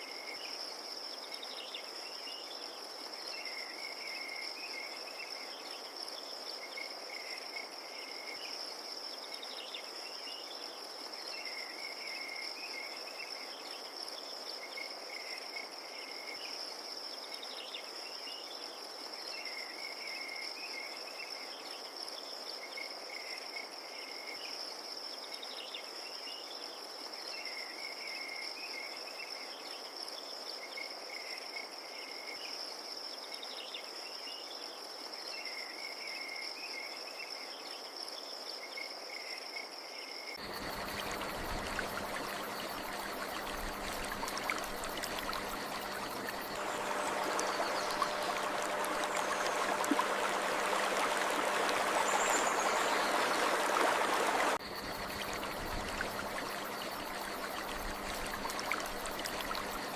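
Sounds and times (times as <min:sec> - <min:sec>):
crickets trilling: 0:39.2 - 0:59.9.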